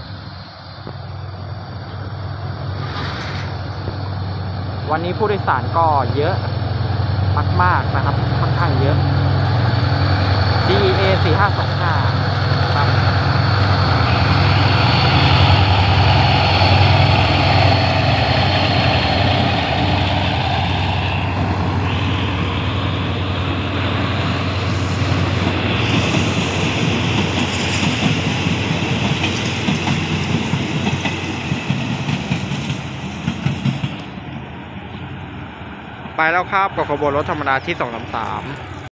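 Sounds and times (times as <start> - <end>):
diesel locomotive engine: 0.0 - 38.9
train wheels clattering on rails: 8.1 - 35.1.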